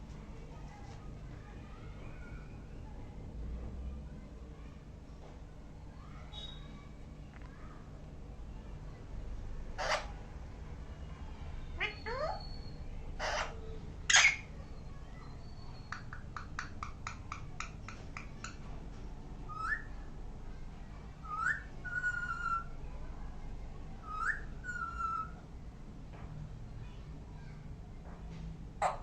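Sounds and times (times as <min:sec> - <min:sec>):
parrot clicks: 0:15.9 - 0:18.6.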